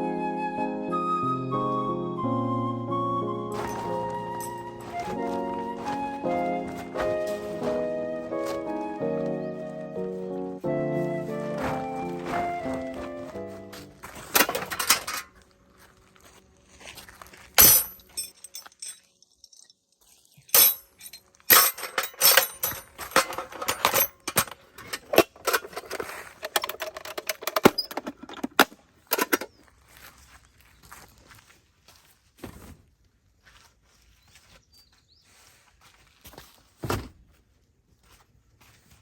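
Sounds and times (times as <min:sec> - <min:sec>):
hard objects clinking and clattering: 0:03.5 - 0:07.8, 0:14.1 - 0:15.4, 0:17.6 - 0:29.6.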